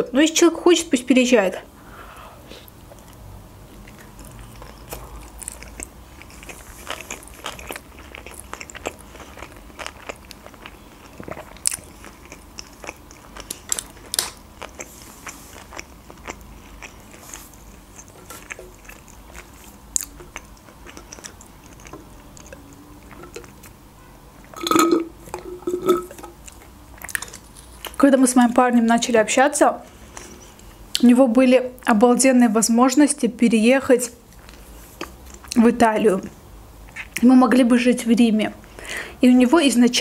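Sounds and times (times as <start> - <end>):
person chewing wet mouth clicks: 18.0 - 23.8.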